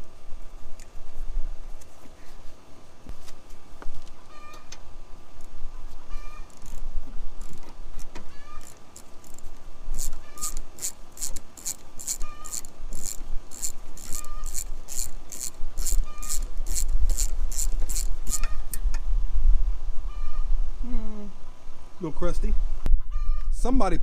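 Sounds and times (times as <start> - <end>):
ratchet wrench clicking: 6.4 - 7.7, 8.4 - 18.8.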